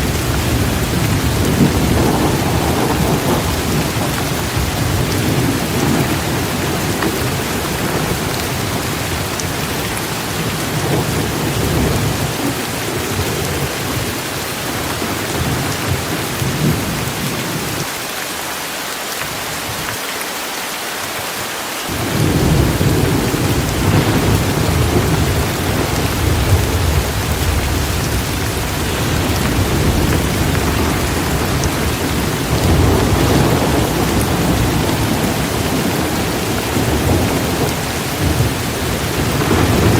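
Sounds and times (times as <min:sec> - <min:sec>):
rolling thunder: 0:00.0 - 0:14.1, 0:21.9 - 0:39.9
torrential rain pouring: 0:00.0 - 0:39.9.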